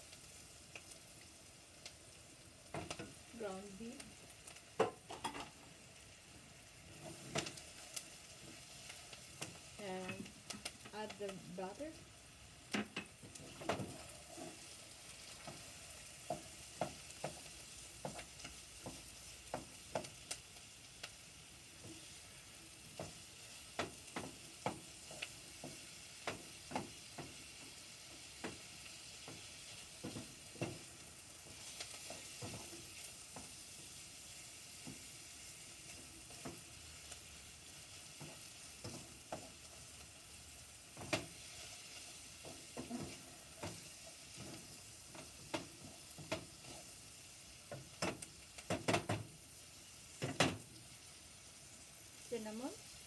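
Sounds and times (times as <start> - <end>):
food sizzling in butter: 0.0 - 53.0
spatula scraping and knocking pot: 15.3 - 20.4.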